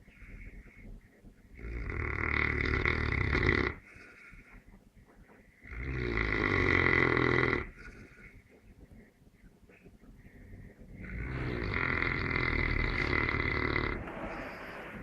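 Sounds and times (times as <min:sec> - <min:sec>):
dog breathing: 0:00.0 - 0:15.0
dog snoring: 0:01.5 - 0:04.4, 0:05.6 - 0:08.4, 0:11.0 - 0:15.0.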